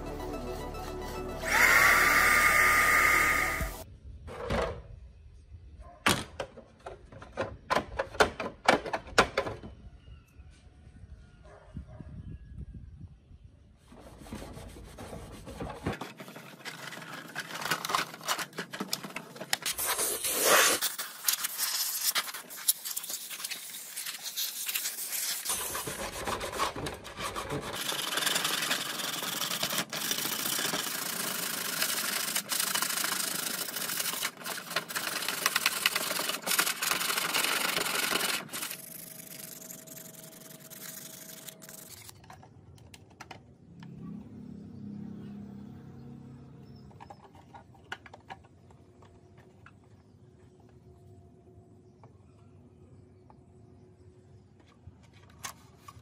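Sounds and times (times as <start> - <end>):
sanding block rubbing plastic: 13.9 - 15.9, 19.7 - 38.8.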